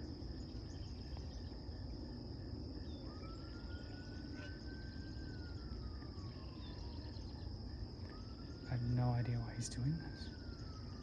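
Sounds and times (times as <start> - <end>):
faint thin whine: 0.0 - 11.0
insect chorus: 0.0 - 11.0
low outdoor rumble: 0.0 - 11.0.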